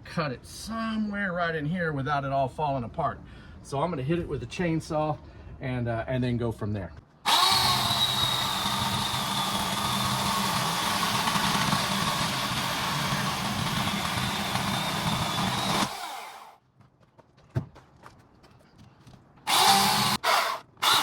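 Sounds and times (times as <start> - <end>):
chainsaw cutting wood: 7.3 - 16.6, 19.5 - 21.0.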